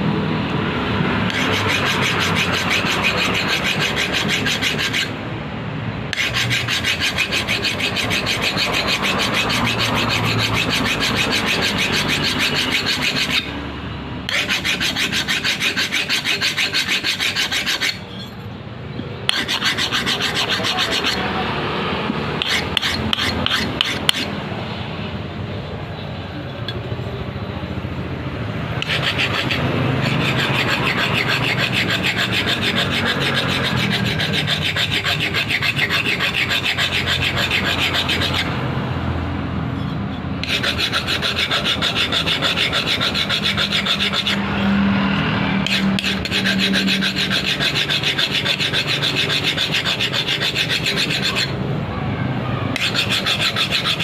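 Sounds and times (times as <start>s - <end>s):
file rasping on metal: 1.3s - 5.2s, 6.1s - 13.6s, 14.3s - 18.4s, 19.3s - 21.4s, 22.4s - 24.3s, 28.8s - 38.6s, 40.4s - 44.8s, 45.6s - 51.6s, 52.8s - 54.0s.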